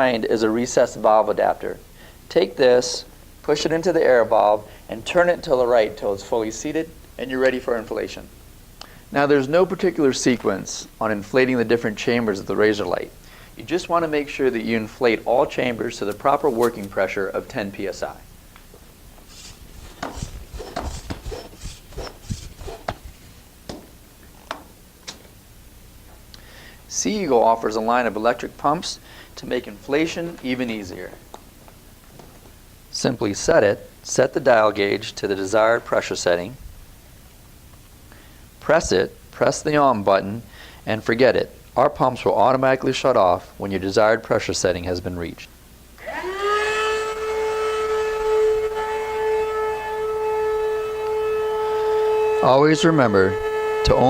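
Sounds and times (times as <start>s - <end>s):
electric air pump whine: 18.7s - 23.9s, 46.0s - 54.0s
hand pump strokes: 19.2s - 23.3s.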